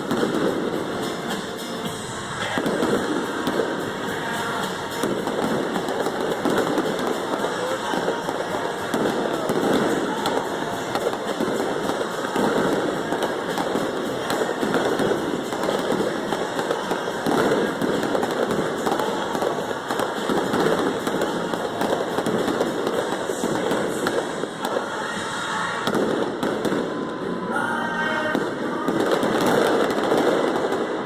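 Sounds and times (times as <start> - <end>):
fireworks popping and crackling: 0.0 - 27.4, 28.2 - 31.0.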